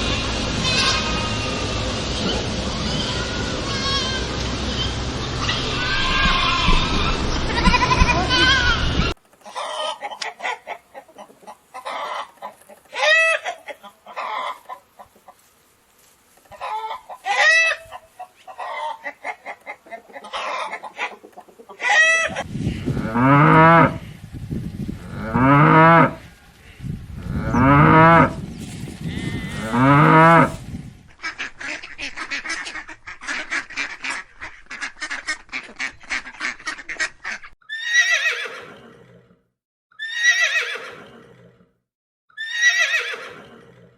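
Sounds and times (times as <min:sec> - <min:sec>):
cow mooing: 0:22.7 - 0:24.1, 0:25.0 - 0:26.3, 0:27.2 - 0:28.4, 0:29.0 - 0:30.6
horse whinnying: 0:37.7 - 0:39.4, 0:40.0 - 0:41.6, 0:42.4 - 0:43.9.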